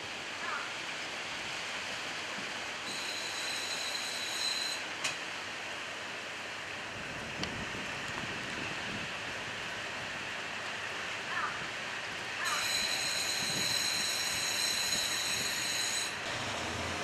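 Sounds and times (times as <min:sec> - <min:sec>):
wheel and brake squeal: 0:02.9 - 0:04.9, 0:12.4 - 0:17.0.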